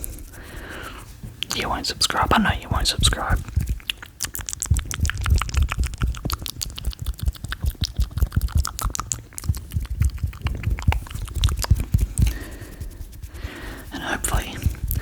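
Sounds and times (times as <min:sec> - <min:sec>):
wet mouth clicks and pops: 0:01.4 - 0:01.6, 0:03.0 - 0:12.4
soft low thumps: 0:02.7 - 0:13.2, 0:14.3 - 0:15.0.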